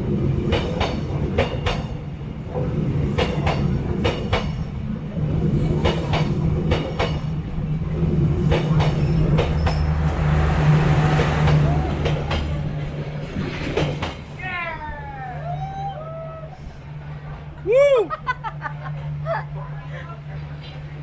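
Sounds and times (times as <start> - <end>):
train wheels clacking on rails: 0.0 - 14.4
train low drone: 0.0 - 21.0.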